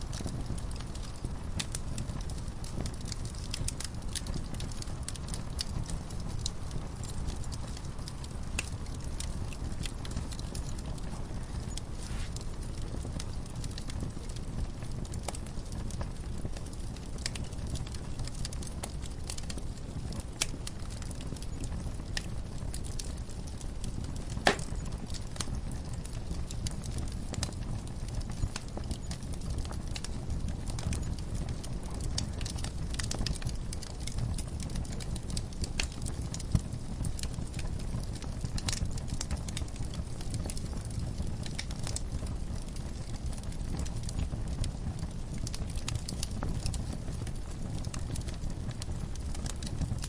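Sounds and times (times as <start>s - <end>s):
low rumble of flames: 0.0s - 50.0s
wood fire crackling: 0.0s - 50.0s.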